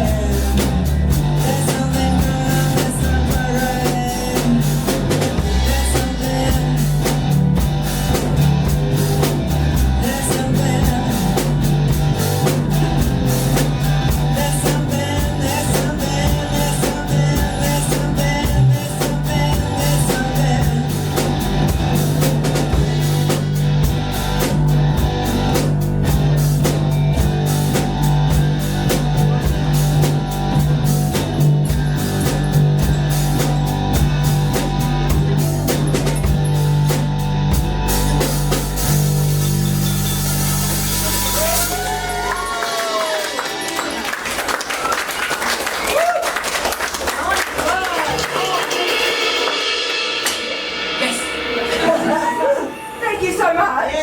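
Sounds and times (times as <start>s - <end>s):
person singing: 0.0s - 7.3s, 9.7s - 11.7s, 14.1s - 21.4s
live rock band playing: 0.0s - 53.8s.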